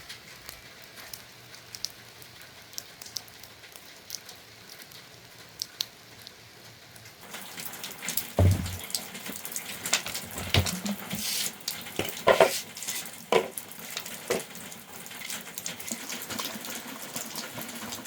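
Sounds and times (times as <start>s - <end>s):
rain hissing: 7.2s - 18.0s
sharp drips: 7.2s - 18.0s.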